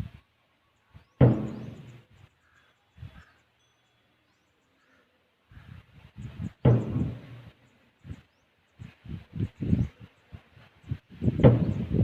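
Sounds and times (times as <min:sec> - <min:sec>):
temple drum strokes: 0:01.2 - 0:02.0, 0:06.6 - 0:07.6.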